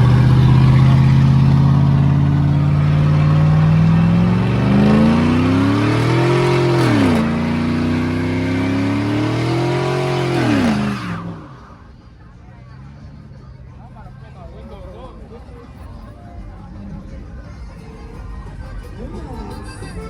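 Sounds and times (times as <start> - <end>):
truck engine revving: 0.0 - 14.2.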